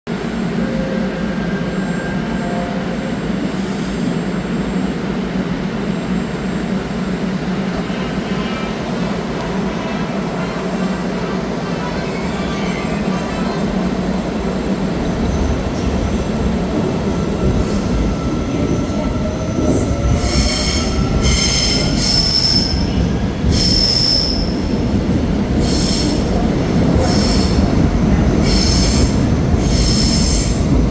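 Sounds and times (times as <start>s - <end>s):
subway train rumbling on rails: 0.0s - 30.9s
train wheels squealing: 17.1s - 24.7s, 27.0s - 30.8s.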